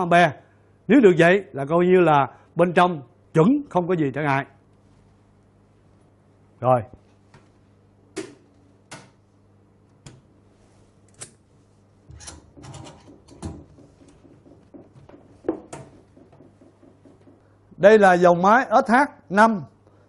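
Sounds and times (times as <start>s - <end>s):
hard objects clicking and knocking: 12.2s - 17.5s.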